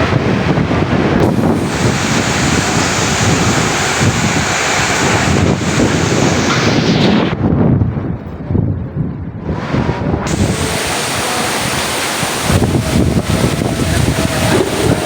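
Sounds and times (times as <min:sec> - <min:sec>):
wind buffeting microphone: 0:00.0 - 0:15.0
heavy rain hiss: 0:00.5 - 0:07.4, 0:10.3 - 0:15.0.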